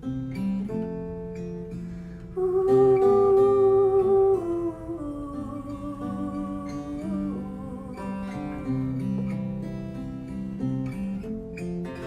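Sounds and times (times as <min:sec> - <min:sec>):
acoustic guitar playing slowly: 0:00.0 - 0:12.0.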